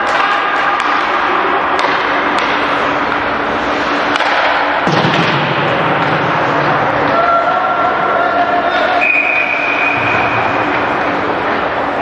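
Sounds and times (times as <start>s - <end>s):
hockey sticks and puck clacking: 0.0s - 7.2s.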